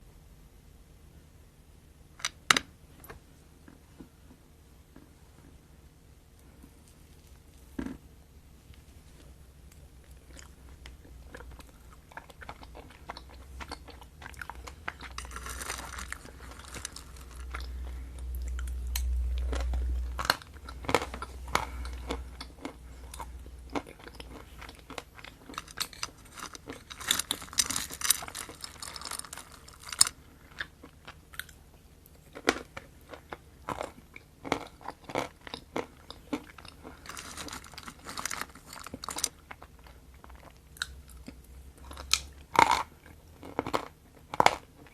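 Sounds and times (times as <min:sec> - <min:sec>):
low rumble: 0:14.3 - 0:23.7.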